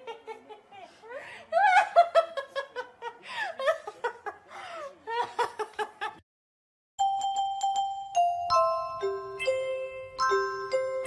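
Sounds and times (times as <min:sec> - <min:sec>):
glockenspiel-like chime: 0:07.0 - 0:11.0.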